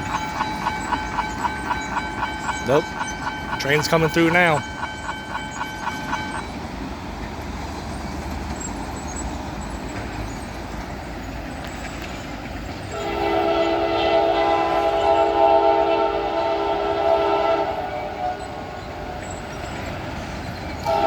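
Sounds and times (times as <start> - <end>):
crossing bell: 0.0 - 6.9
freight locomotive rumble: 0.0 - 21.0
train air horn chord: 12.9 - 18.6.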